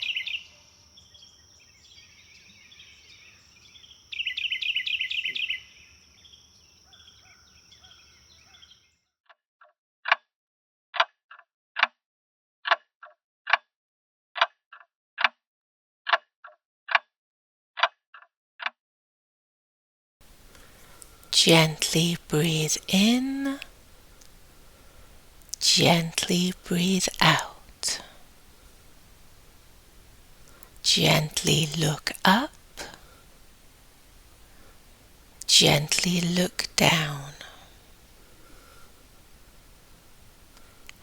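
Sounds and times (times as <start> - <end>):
birds chirping: 0.0 - 8.8, 20.3 - 41.0.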